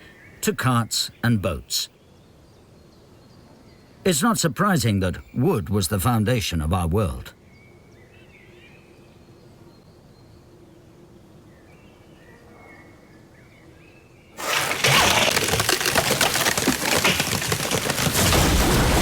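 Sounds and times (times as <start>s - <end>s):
loud dense crackling noise: 14.4s - 19.0s.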